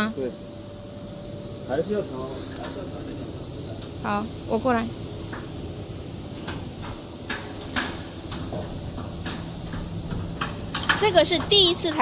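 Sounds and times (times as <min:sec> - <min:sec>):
low machine hum: 0:00.0 - 0:12.0
clicks and knocks of tools: 0:06.4 - 0:11.0.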